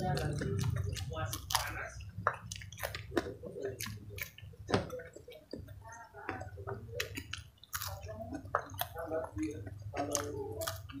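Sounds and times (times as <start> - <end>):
lip smacks and mouth clicks: 0.0 - 5.7
wet chewing: 0.0 - 11.0.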